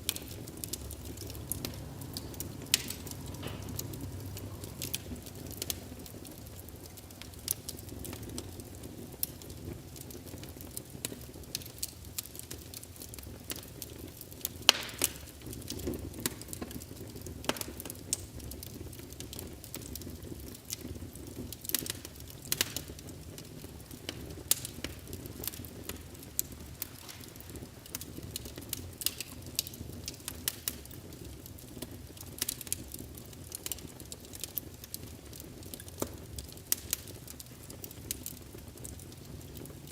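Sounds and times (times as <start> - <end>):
low steady rumble: 0.0 - 9.9
fireplace fire crackling: 0.0 - 39.9.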